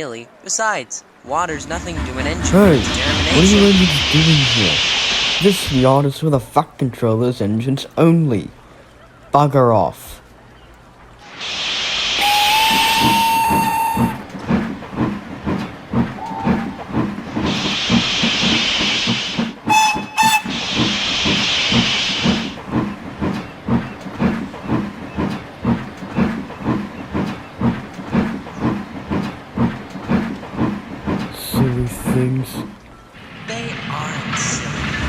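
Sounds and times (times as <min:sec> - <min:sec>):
steam locomotive chuffing: 0:01.2 - 0:06.7, 0:11.2 - 0:35.0
steam hissing: 0:01.3 - 0:06.3, 0:11.3 - 0:14.2, 0:15.9 - 0:23.4
locomotive whistle: 0:12.1 - 0:14.4, 0:16.0 - 0:16.9, 0:17.6 - 0:22.6.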